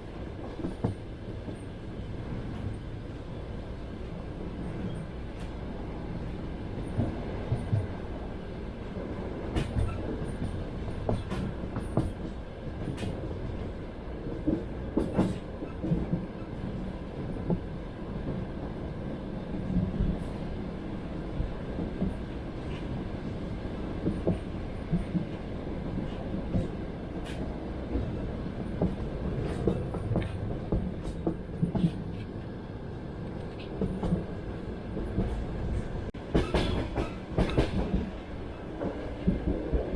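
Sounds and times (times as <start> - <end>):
train carriage low rumble: 0.0 - 39.9
wheels clacking over rail joints: 36.2 - 39.9.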